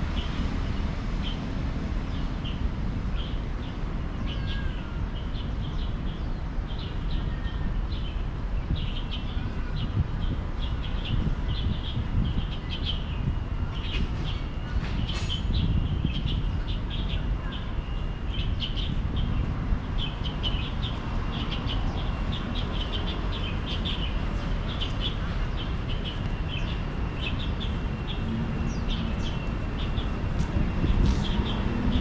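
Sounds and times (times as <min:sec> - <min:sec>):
small birds chirping: 0:00.1 - 0:32.0
steady low rumble: 0:07.7 - 0:32.0.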